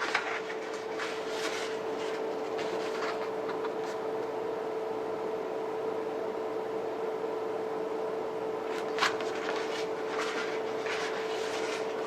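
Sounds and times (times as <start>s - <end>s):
packaging rustling: 0.0s - 4.0s, 8.7s - 12.0s
electrical hum: 0.0s - 12.0s.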